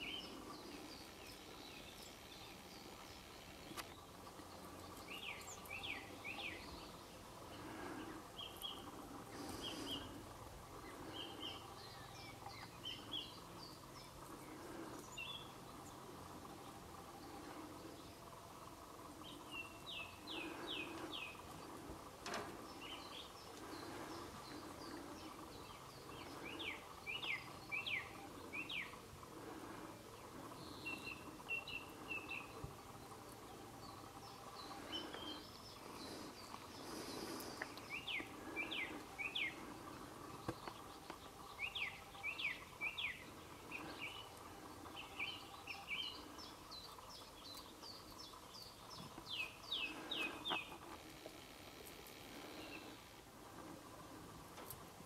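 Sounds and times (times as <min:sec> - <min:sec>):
faint steady background noise: 0:00.0 - 0:55.0
songbird singing: 0:00.0 - 0:55.0
bird chirps: 0:22.7 - 0:29.1, 0:30.4 - 0:50.8.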